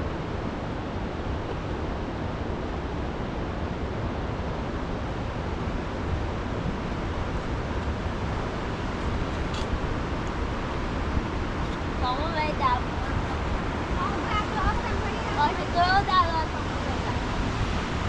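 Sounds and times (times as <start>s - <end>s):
river in flood rushing: 0.0s - 18.0s.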